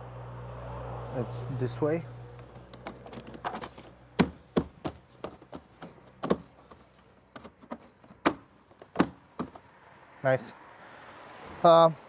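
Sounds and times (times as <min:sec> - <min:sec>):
car parts clicking into place: 0:02.5 - 0:09.6.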